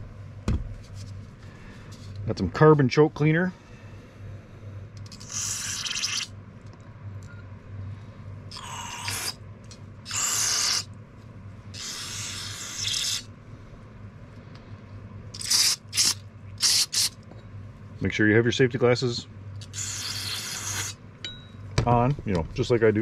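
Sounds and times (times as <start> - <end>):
steady low hum: 0.0 - 23.0
aerosol spray hissing bursts: 15.4 - 17.2, 19.6 - 21.0.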